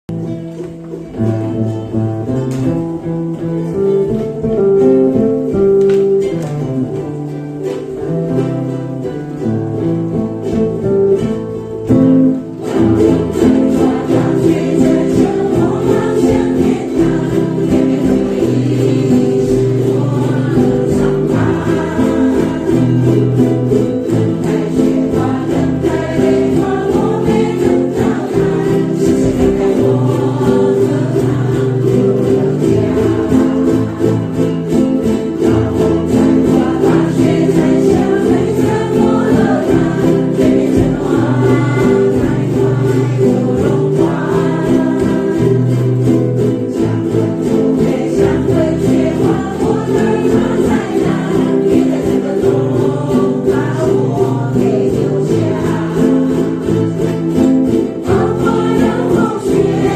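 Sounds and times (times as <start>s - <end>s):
strummed ukulele: 0.0s - 59.9s
group singing: 3.9s - 59.9s.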